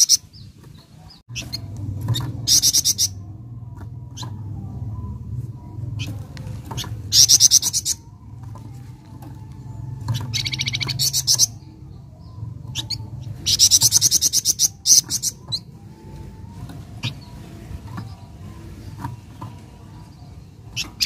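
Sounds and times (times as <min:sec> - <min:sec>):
bird calling with high notes: 0:09.9 - 0:16.2.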